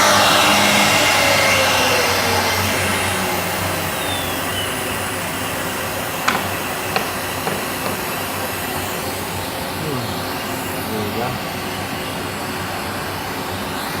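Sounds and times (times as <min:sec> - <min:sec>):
wood router whooshing: 0:06.2 - 0:08.3.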